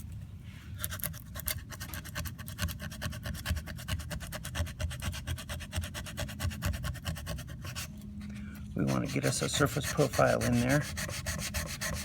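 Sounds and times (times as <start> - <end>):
sandpaper rubbing back and forth: 8.8 - 12.0.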